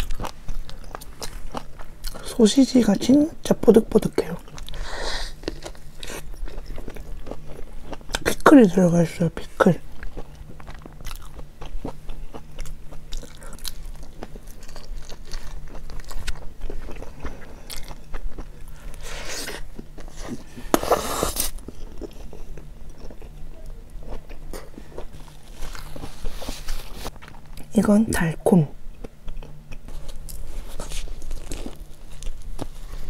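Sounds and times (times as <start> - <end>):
chewing hot dog: 0.0 - 2.3, 4.3 - 8.4, 9.9 - 27.7.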